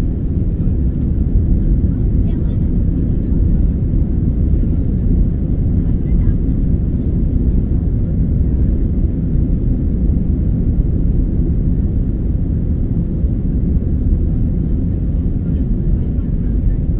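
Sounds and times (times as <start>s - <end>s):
jet engines rumbling: 0.0s - 16.9s.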